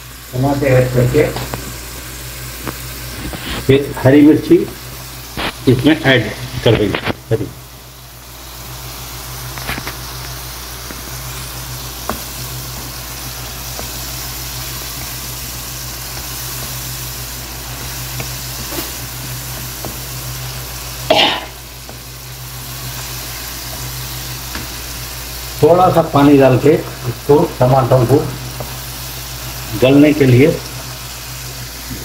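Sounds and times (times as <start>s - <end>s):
masala sizzling in oil: 0.0s - 32.0s
wooden spatula scraping wok: 9.2s - 25.7s.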